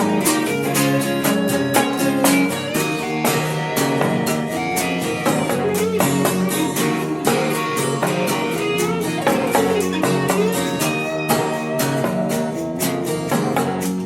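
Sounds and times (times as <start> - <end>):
grunge rock band playing: 0.0 - 14.0.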